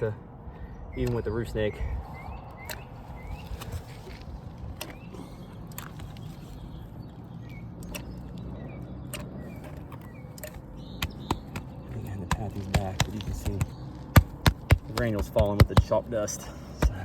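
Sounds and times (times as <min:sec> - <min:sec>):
sharp clicks and taps: 0:11.0 - 0:16.0.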